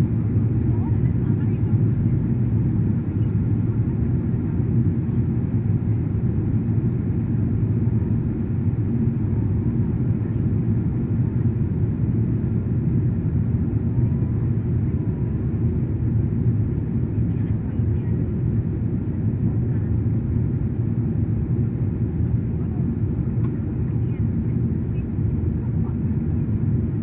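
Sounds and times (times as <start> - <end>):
airliner engine rumble: 0.0 - 27.0.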